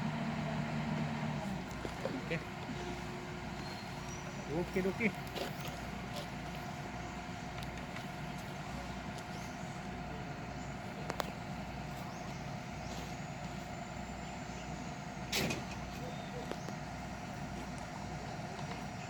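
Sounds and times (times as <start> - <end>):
diesel engine rumbling: 0.0 - 19.0.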